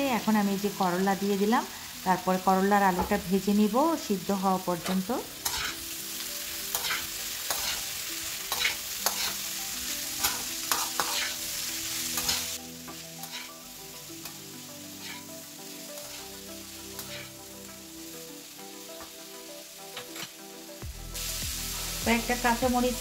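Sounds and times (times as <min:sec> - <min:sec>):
vegetables sizzling in oil: 0:00.0 - 0:23.0
metal spatula scraping a pan: 0:04.8 - 0:13.6, 0:14.2 - 0:17.4, 0:19.9 - 0:20.4.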